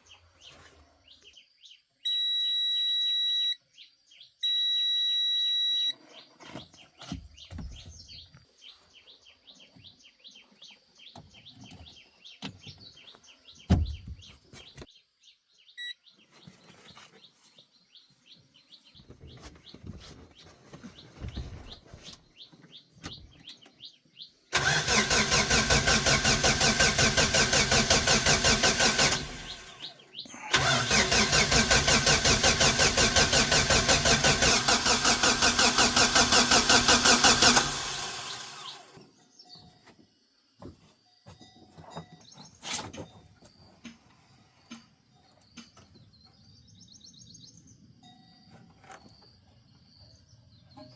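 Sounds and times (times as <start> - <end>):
car engine cranking and running: 24.6 - 39.0.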